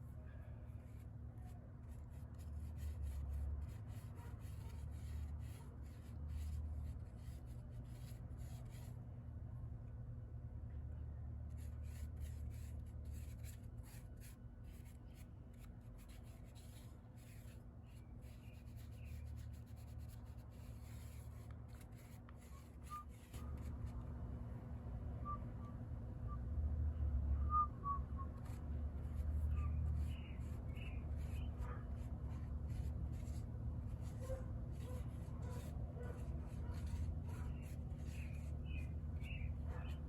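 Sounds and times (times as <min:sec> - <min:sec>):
steady low hum: 0:00.0 - 0:40.0
quick scratching strokes: 0:00.7 - 0:08.9, 0:11.5 - 0:24.1, 0:28.3 - 0:40.0.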